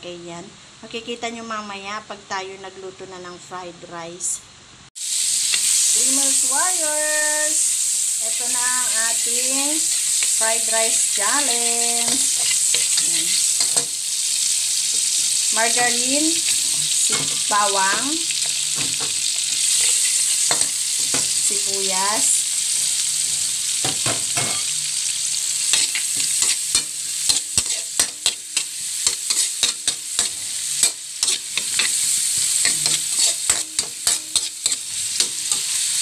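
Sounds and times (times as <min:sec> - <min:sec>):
garlic and onion sizzling: 0:05.0 - 0:36.0
metal ladle scraping pan: 0:25.7 - 0:35.9.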